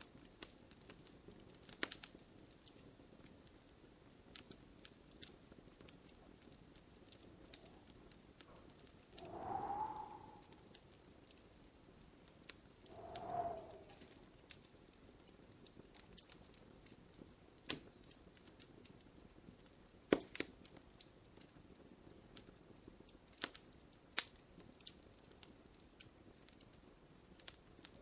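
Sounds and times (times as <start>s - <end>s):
fire snaps: 0.0s - 28.0s
wood fire crackling: 0.0s - 28.0s.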